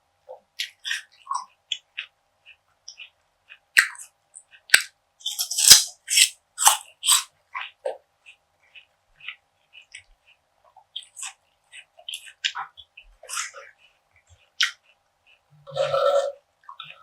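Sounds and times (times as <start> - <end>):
crunchy eating: 0.6 - 17.0
mouth clicks: 2.9 - 8.0.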